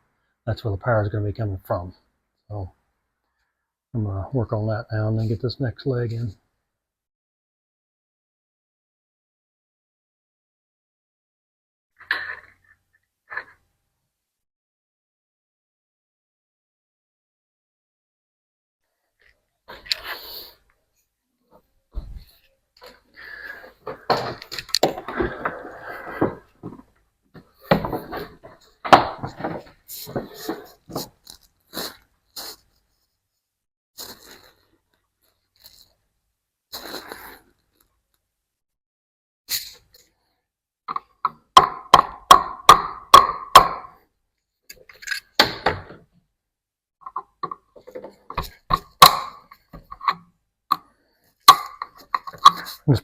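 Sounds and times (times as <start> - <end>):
rustling scraping and knocks: 23.8 - 33.1.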